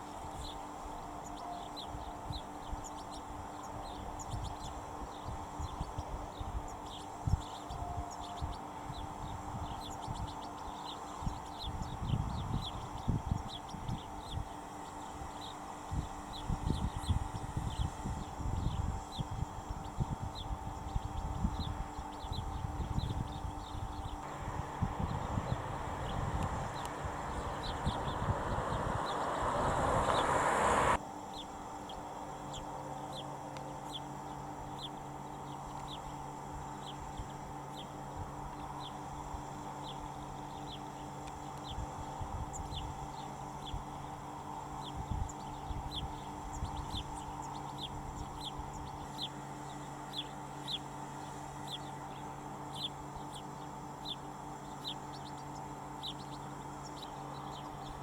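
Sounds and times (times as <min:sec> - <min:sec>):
steady low hum: 0:00.0 - 0:31.0
bird chirping: 0:24.2 - 0:31.0
rush of noise: 0:24.2 - 0:31.0.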